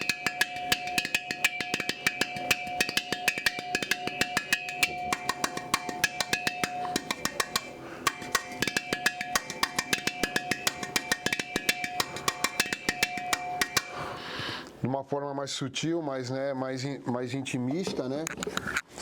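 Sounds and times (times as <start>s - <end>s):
strikes on empty gas cylinder: 0.0s - 14.1s.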